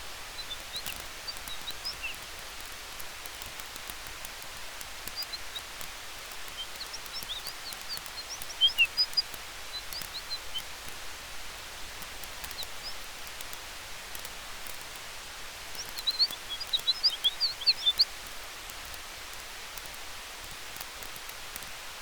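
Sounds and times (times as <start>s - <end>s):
campfire crackling and popping: 0.0s - 22.0s
wind hiss: 0.0s - 22.0s
high bird chirps: 0.3s - 2.2s, 5.1s - 5.7s, 6.5s - 10.7s, 15.8s - 18.1s.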